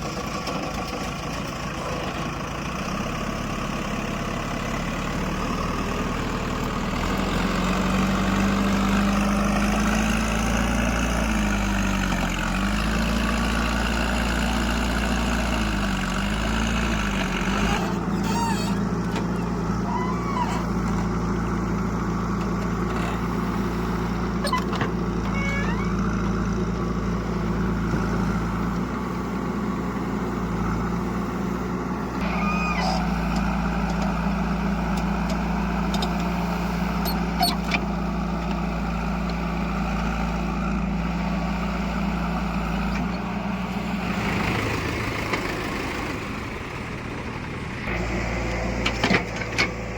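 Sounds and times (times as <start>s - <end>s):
heavy diesel engine running: 0.0s - 49.9s
short high squeaks: 17.6s - 20.8s, 24.4s - 26.2s, 32.2s - 33.2s, 37.0s - 37.7s.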